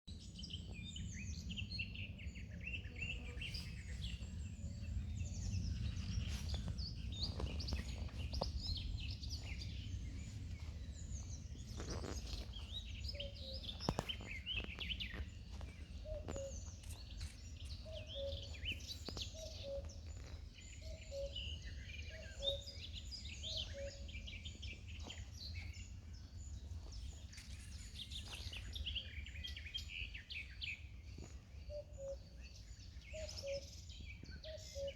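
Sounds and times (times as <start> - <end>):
birds chirping and singing: 0.1 - 34.9
steady low rumble: 3.8 - 21.1.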